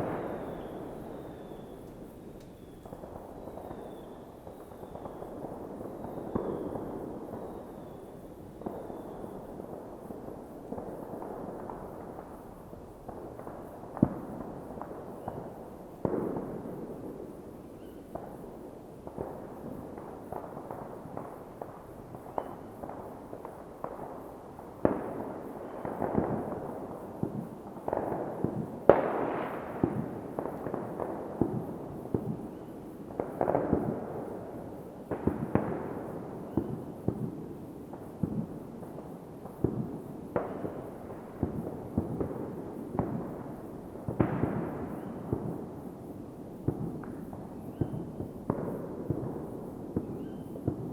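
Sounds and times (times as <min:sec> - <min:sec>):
distant fireworks rumble: 0:00.0 - 0:50.9
fireworks bangs and crackles: 0:00.0 - 0:50.9.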